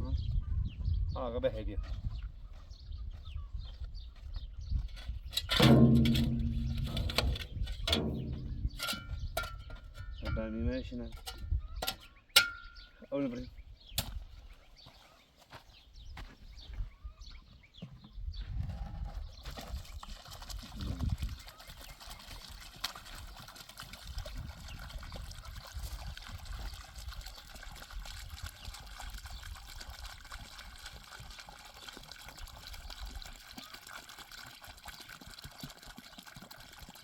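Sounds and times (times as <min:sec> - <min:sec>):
water trickling: 0:05.4 - 0:10.3, 0:19.5 - 0:37.0
low rumble: 0:05.6 - 0:09.4.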